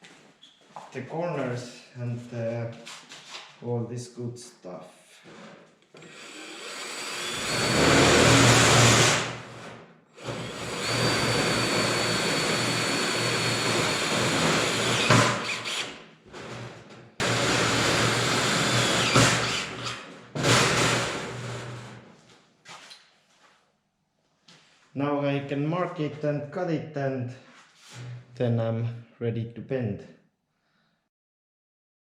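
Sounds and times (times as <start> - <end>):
power drill driving screws into metal: 6.0 - 22.0.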